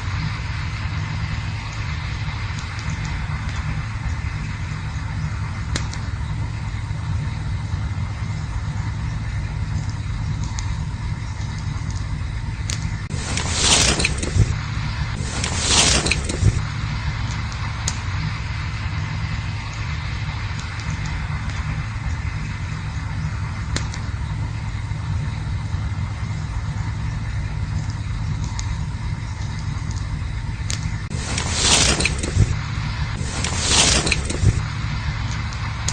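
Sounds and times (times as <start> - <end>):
campfire crackling: 0.0 - 35.9
sudden rush of noise: 13.0 - 25.2, 31.0 - 35.9.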